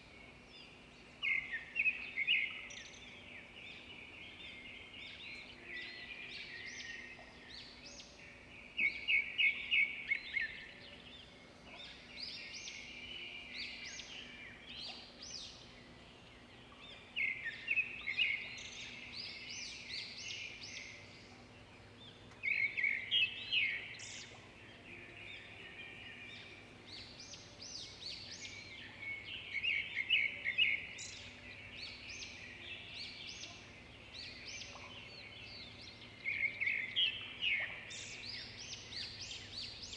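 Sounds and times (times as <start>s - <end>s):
birds twittering: 0.0s - 39.9s
faint steady hum: 0.0s - 39.9s.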